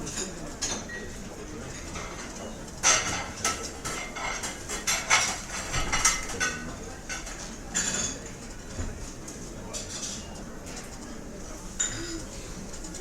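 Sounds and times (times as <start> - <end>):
cutlery and dishes clinking: 1.7 - 8.4, 9.7 - 11.0.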